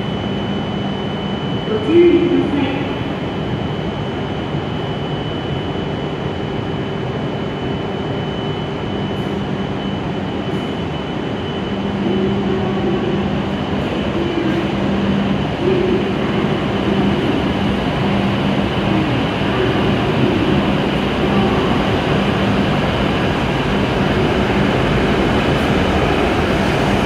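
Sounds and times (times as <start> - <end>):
train running hum: 0.0 - 27.0
low tone: 8.2 - 27.0.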